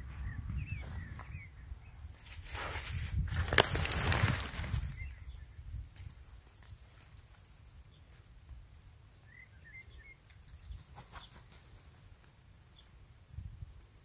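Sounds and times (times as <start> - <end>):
faint bird twitter: 0.0 - 2.3, 4.7 - 5.9, 9.1 - 11.8.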